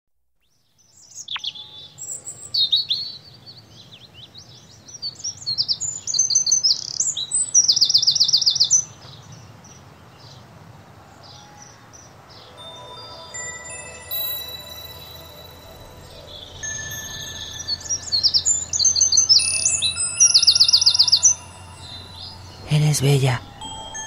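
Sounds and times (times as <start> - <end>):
faint steady background noise: 0.4 - 24.0
birds chirping and whistling: 1.0 - 3.2, 12.6 - 24.0
bird trilling: 12.7 - 24.0.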